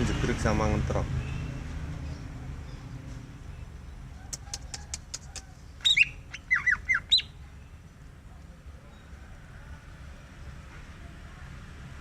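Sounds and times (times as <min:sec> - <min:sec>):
bird clicking ticks: 0:04.3 - 0:05.5
bird whistling notes: 0:04.3 - 0:07.4.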